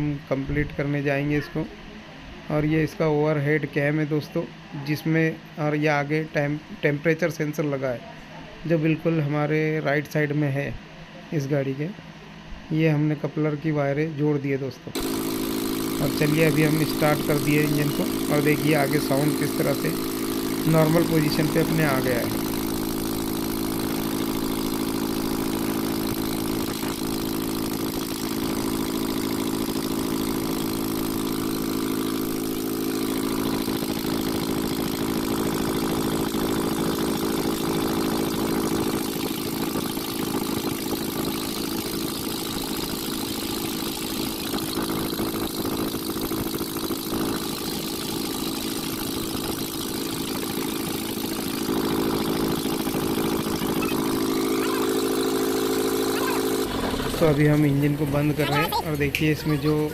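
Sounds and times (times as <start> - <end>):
diesel truck engine idling: 15.0 - 59.9.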